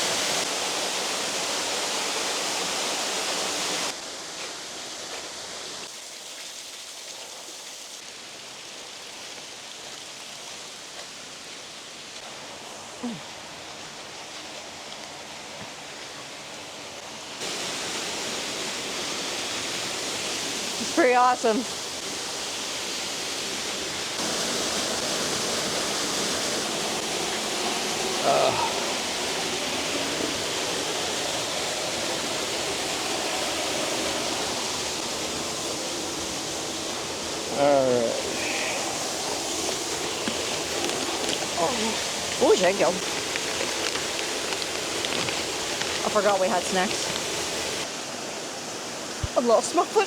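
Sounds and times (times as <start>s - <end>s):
waterfall rushing: 0.0s - 4.9s, 16.0s - 50.0s.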